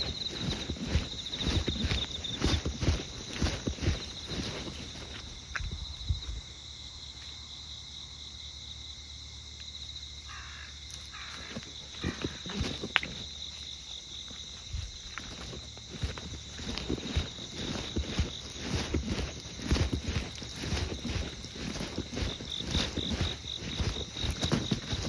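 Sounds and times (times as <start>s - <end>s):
footsteps scuffing on pavement: 0.0s - 6.4s, 10.3s - 25.0s
insects chirring: 0.0s - 25.0s.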